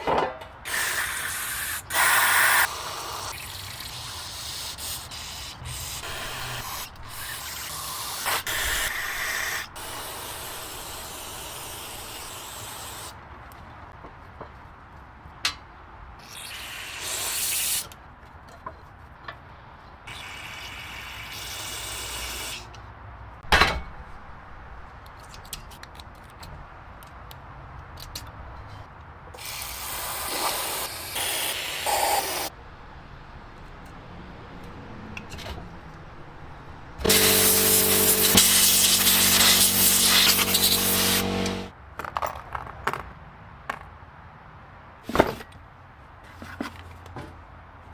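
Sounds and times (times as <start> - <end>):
hissing spray bursts: 0.7 - 13.2, 29.4 - 32.5, 37.0 - 41.7
steady machine hum: 37.0 - 41.7.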